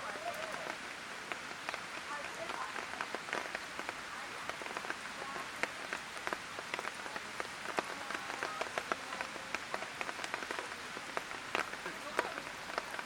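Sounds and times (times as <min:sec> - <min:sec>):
light rain hissing: 0:00.0 - 0:13.0
raindrops ticking on hard surfaces: 0:00.0 - 0:13.0.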